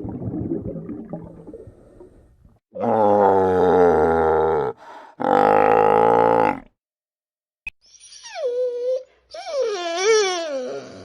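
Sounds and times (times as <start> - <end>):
dog whining and howling: 7.8 - 11.0.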